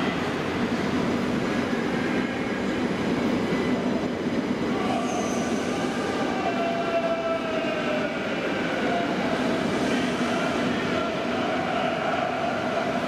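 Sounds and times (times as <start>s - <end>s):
brief high squeal: 5.0s - 5.8s.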